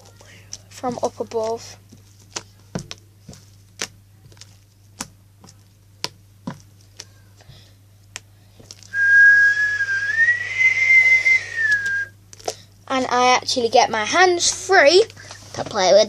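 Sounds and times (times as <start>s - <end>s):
loud whistling tone: 8.9s - 12.1s.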